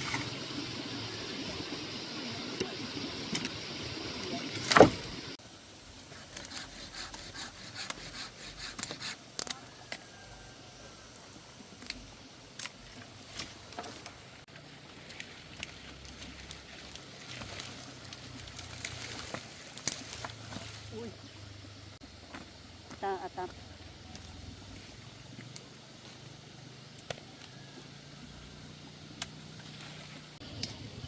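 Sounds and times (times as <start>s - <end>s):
twigs snapping and clicking: 15.0s - 20.7s.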